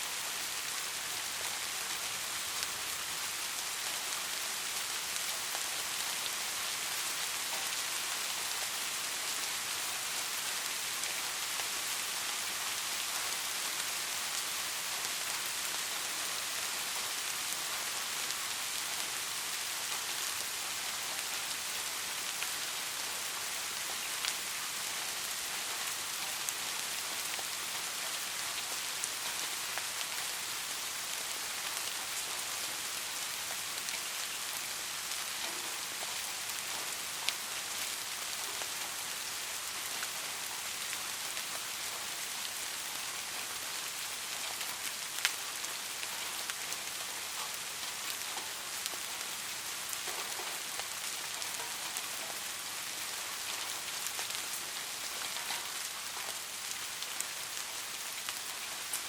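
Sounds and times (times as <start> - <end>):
light rain hissing: 0.0 - 59.0.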